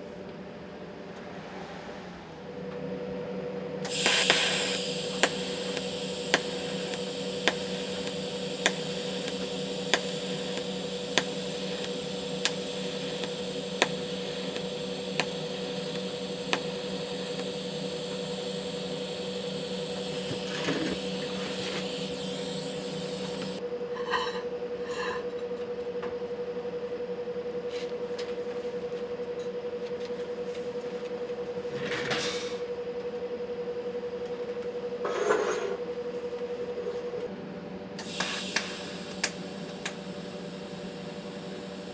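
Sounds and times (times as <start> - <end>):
machine hum: 3.8 - 23.7, 38.0 - 41.9
hiss: 3.9 - 23.6, 38.0 - 41.9
sharp ticks: 3.9 - 23.6.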